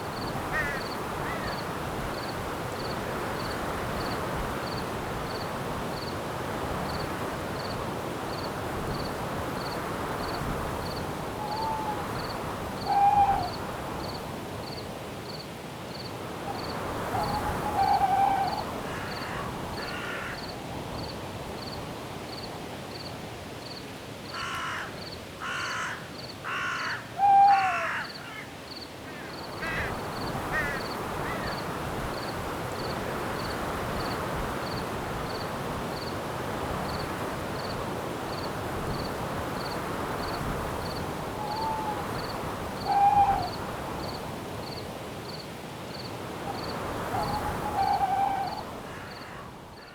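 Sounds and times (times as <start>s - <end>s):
crickets chirping: 0.0s - 49.9s
wind hiss: 27.8s - 49.9s.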